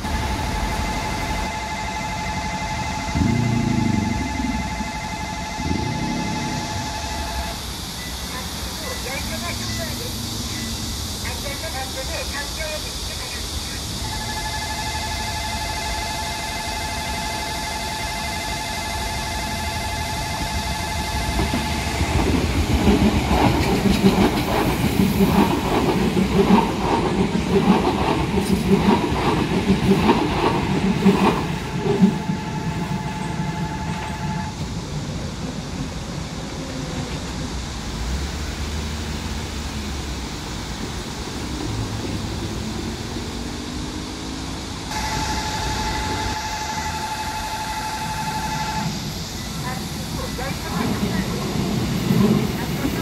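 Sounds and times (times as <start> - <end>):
level-crossing warning bell: 0.0 - 34.7, 43.9 - 53.0
train wheels clickety-clack: 20.3 - 34.9, 48.5 - 53.0.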